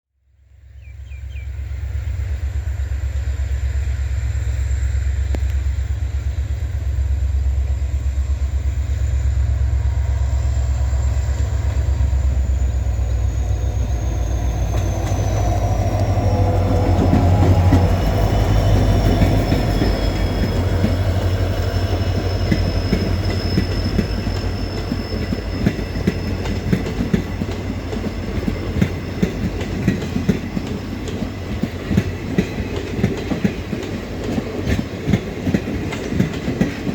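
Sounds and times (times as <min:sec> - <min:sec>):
deep locomotive engine rumble: 0:00.4 - 0:36.9
wheels clicking over rail joints: 0:14.6 - 0:36.9.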